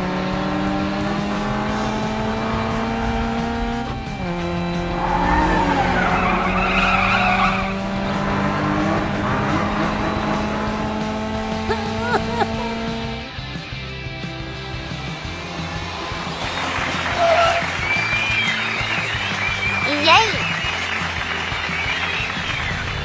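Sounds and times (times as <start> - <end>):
cartoon racing car engine: 0.0 - 13.4, 14.8 - 23.0
tyre screech: 4.8 - 10.7, 16.8 - 18.8.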